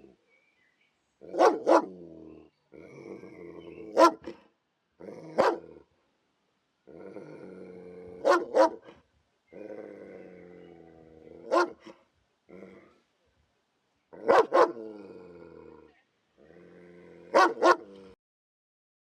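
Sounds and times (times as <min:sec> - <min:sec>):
dog barking: 0:01.3 - 0:02.0, 0:03.9 - 0:04.4, 0:05.4 - 0:05.6, 0:08.2 - 0:08.9, 0:11.5 - 0:12.0, 0:14.2 - 0:14.8, 0:17.3 - 0:17.9.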